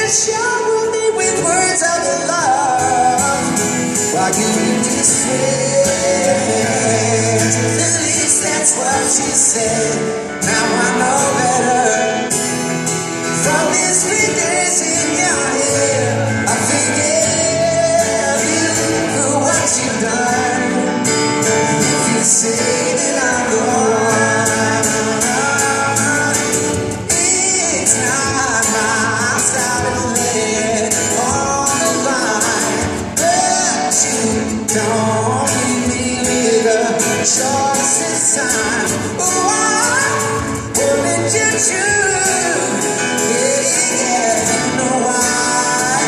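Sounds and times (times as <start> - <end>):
live pop-rock band: 0.0 - 46.0
person singing: 0.0 - 46.0.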